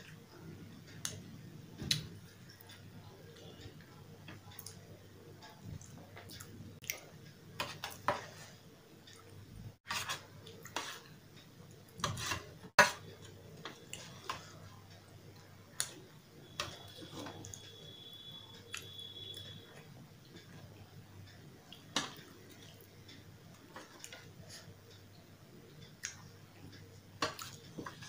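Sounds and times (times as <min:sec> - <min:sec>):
spoon scraping steel plate: 0:12.0 - 0:13.1
mouth clicks and chewing: 0:18.6 - 0:19.5.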